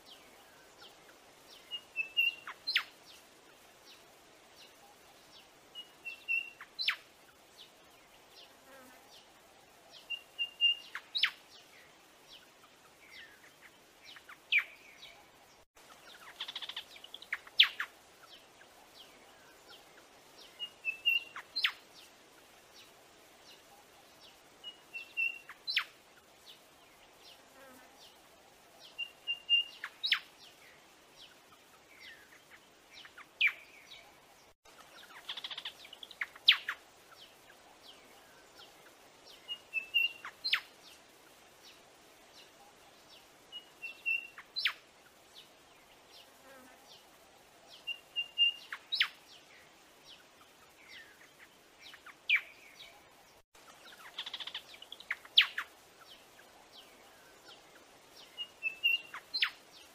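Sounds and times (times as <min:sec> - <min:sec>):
robin whistled calls: 0:01.6 - 0:02.9, 0:05.8 - 0:07.0, 0:10.0 - 0:11.4, 0:20.4 - 0:21.8, 0:24.6 - 0:25.9, 0:29.0 - 0:30.3, 0:39.4 - 0:40.7, 0:43.5 - 0:44.8, 0:47.8 - 0:49.2, 0:53.8 - 0:55.7, 0:58.2 - 0:59.6.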